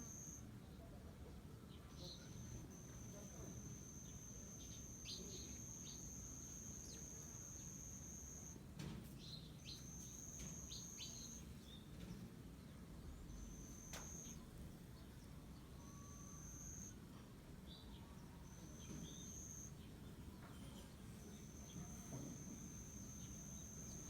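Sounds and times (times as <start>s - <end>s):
insect high-pitched trill: 0.0s - 0.4s, 2.0s - 8.6s, 9.6s - 11.4s, 13.3s - 14.5s, 15.7s - 17.0s, 18.4s - 19.8s, 20.6s - 24.0s
bird chirps: 1.9s - 8.4s, 9.2s - 12.0s, 17.7s - 24.0s.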